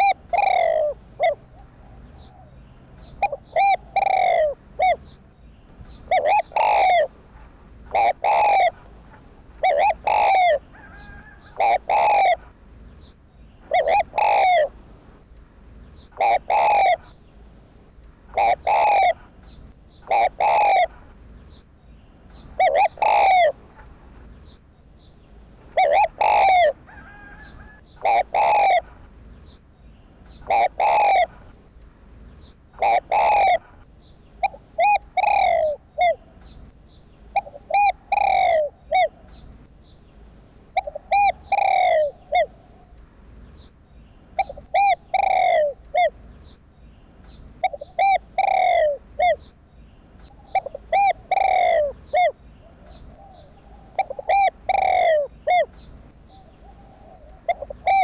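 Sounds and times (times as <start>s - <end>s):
dove cooing: 0.0s - 5.2s, 5.9s - 12.6s, 13.6s - 14.9s, 16.0s - 17.2s, 18.3s - 21.1s, 22.3s - 24.0s, 25.6s - 29.0s, 30.4s - 31.5s, 32.8s - 36.6s, 37.3s - 39.4s, 40.7s - 43.0s, 44.4s - 46.2s, 47.6s - 49.6s, 50.2s - 58.0s.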